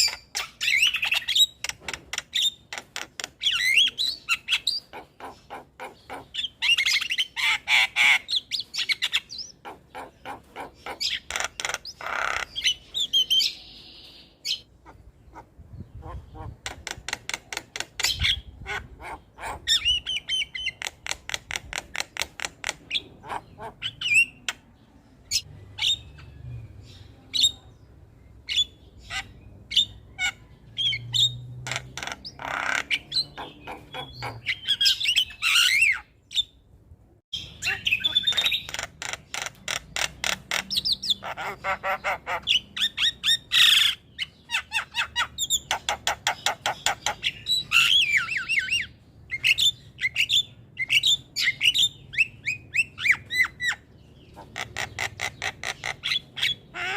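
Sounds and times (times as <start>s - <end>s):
harsh raspy bird squawks: 3.4s - 13.5s, 14.5s - 21.8s, 22.4s - 24.5s, 30.1s - 36.1s, 37.6s - 52.2s, 52.8s - 56.9s.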